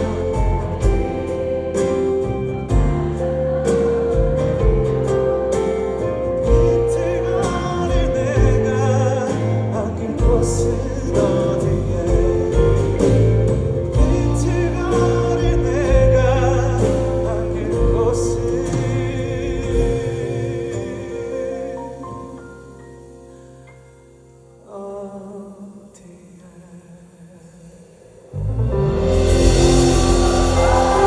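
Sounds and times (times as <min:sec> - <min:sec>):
man singing a ballad: 0:00.0 - 0:01.4, 0:06.2 - 0:22.8, 0:24.6 - 0:27.6
bass and drums: 0:00.0 - 0:23.6, 0:28.4 - 0:31.0.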